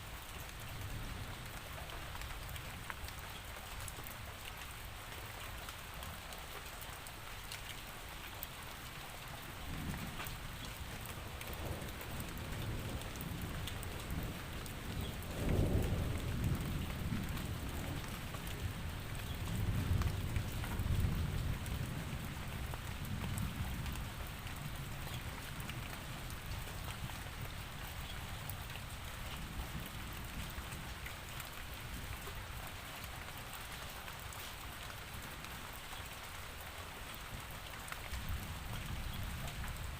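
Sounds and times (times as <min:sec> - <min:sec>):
steady rain falling: 0:00.0 - 0:39.9
low rolling thunder: 0:09.6 - 0:27.6.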